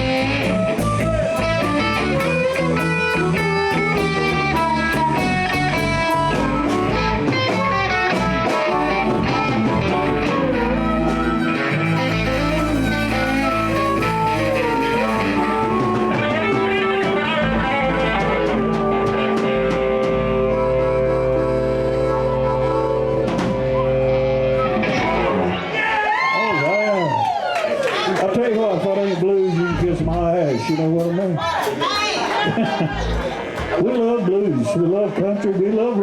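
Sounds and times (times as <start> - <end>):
electric guitar lead: 0.0 - 27.0
drums: 0.0 - 27.1, 29.7 - 34.4
bass: 0.0 - 27.4, 28.3 - 36.0.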